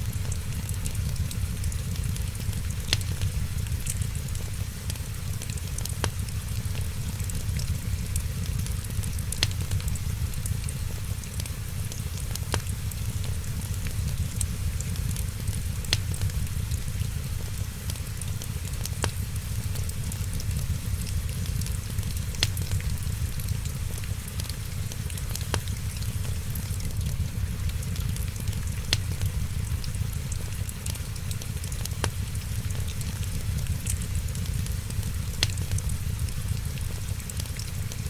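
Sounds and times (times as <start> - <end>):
fire popping: 0.0 - 38.0
wood fire crackling: 0.0 - 38.0.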